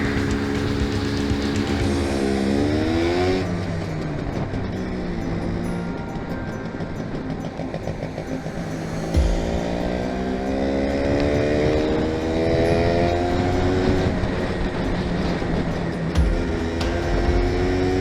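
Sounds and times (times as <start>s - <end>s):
motorcycle engine accelerating: 0.0s - 5.4s, 7.5s - 18.0s.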